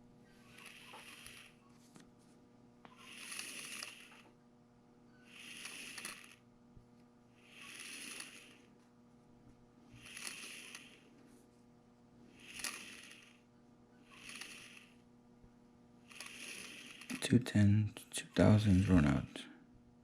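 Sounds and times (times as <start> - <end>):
soft hissing scrape: 0.5 - 1.6, 7.4 - 8.7, 14.1 - 15.0, 16.1 - 17.2
lathe humming: 2.9 - 4.3, 5.3 - 6.4, 10.0 - 11.0, 16.1 - 17.2.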